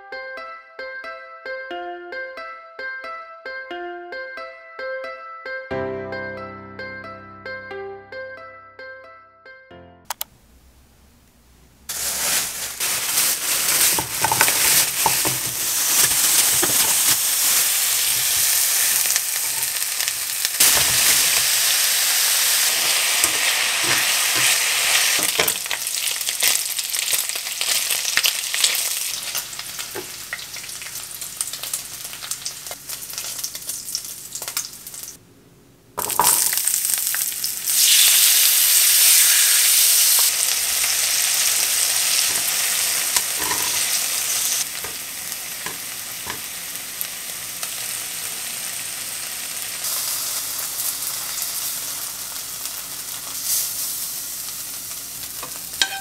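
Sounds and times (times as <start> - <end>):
garlic and kimchi sizzling: 11.9 - 35.2, 36.0 - 56.0
meat sizzling in oil: 11.9 - 35.2, 36.3 - 56.0
metal tongs clicking on pan: 55.4 - 56.0.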